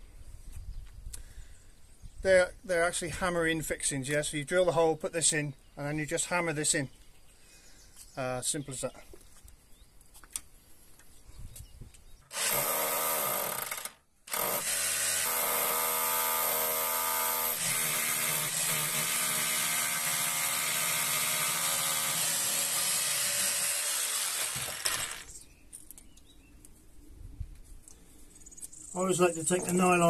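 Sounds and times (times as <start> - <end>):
power drill boring through wood: 12.3 - 25.4.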